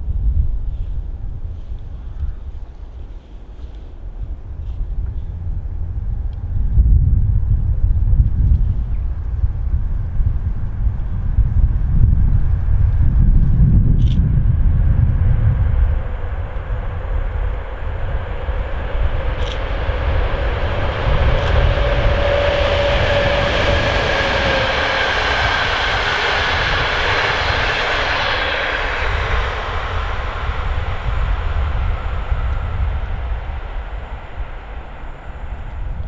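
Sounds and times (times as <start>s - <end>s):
train wheels rushing on rail: 14.0s - 36.0s
locomotive humming tone: 14.4s - 36.0s.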